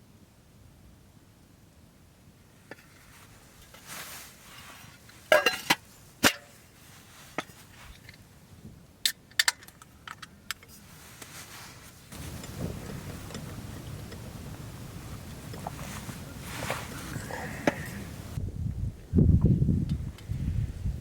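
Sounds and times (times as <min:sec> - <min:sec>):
brief rustle: 0:09.6 - 0:14.2, 0:15.5 - 0:18.1.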